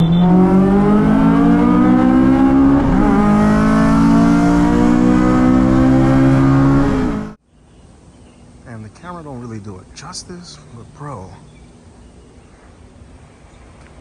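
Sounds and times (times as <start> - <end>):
car engine accelerating hard: 0.0 - 7.4.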